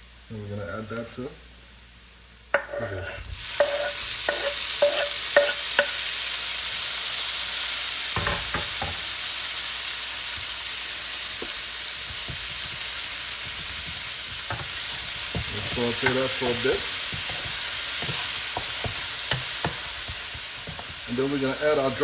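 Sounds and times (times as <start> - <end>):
food sizzling in frying pan: 0.0 - 22.0.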